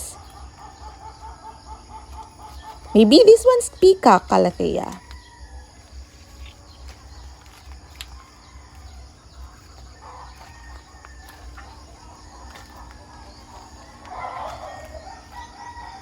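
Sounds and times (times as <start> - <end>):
distant chickens calling: 0.0 - 16.0
insect drone: 0.0 - 16.0.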